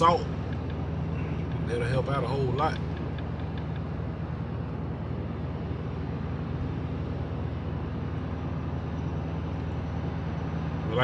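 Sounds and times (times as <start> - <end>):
pickup engine and road drone: 0.0 - 11.0.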